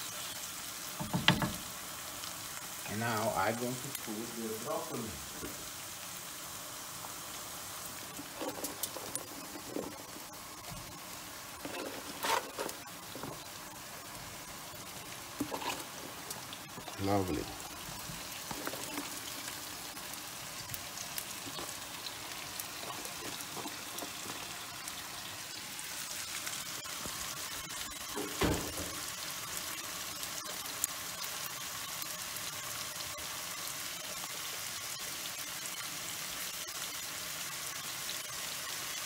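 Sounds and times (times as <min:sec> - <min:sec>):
vegetables sizzling in oil: 0:00.0 - 0:39.0.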